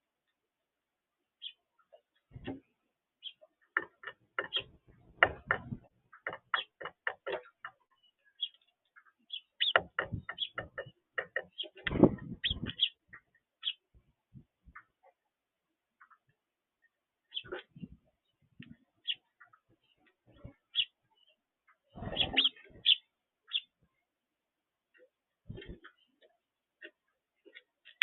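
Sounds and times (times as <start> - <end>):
birds tapping and knocking: 1.9 - 13.8, 21.6 - 23.0, 24.9 - 28.0.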